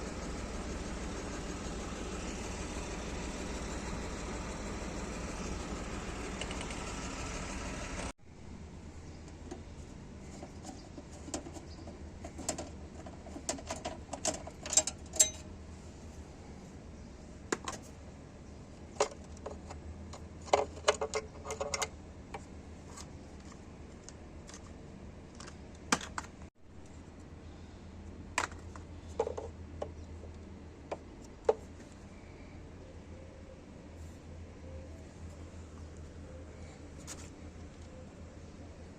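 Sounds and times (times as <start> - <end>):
low steady hum: 0.0 - 38.9.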